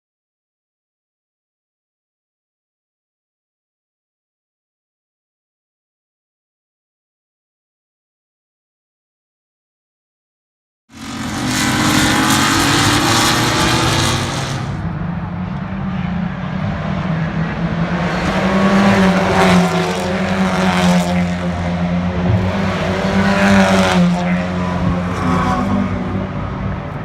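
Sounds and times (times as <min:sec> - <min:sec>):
race car engines: 0:10.9 - 0:27.0.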